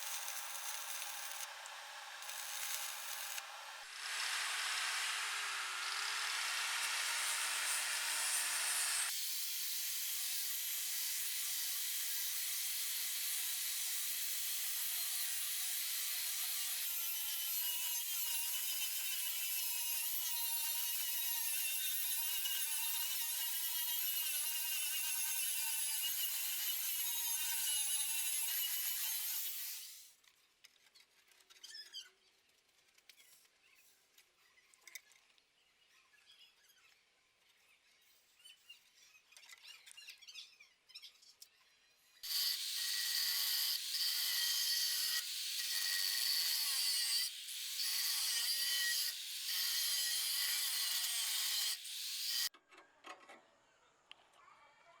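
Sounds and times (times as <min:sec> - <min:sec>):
power tool running: 0:00.0 - 0:09.2.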